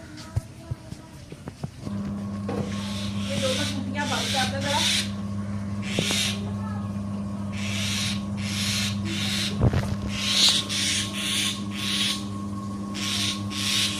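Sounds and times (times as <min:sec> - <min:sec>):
chicks rasping begging calls: 0:02.6 - 0:05.2, 0:05.8 - 0:06.6, 0:07.5 - 0:13.9.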